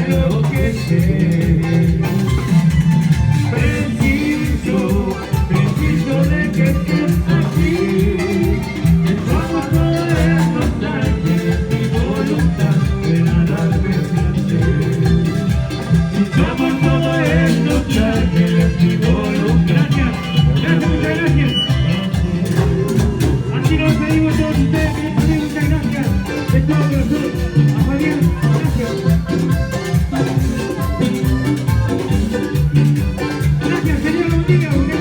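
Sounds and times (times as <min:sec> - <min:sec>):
band playing latin dance music: 0:00.0 - 0:35.0.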